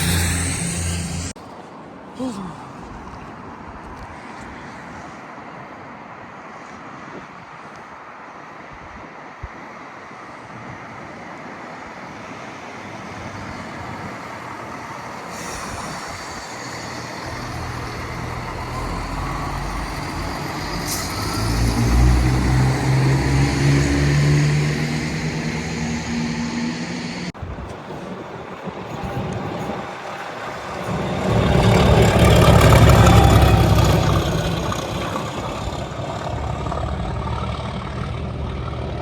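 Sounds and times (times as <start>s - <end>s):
diesel train engine drone: 0.0s - 1.6s, 10.9s - 39.0s
rail noise: 0.0s - 39.0s.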